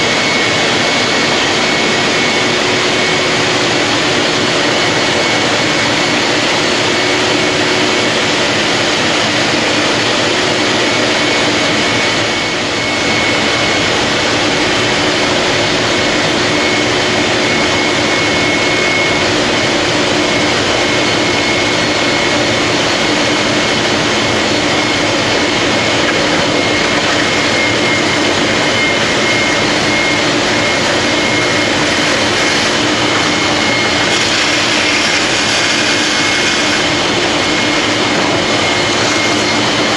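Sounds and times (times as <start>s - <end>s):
vacuum cleaner whining: 0.0s - 39.9s.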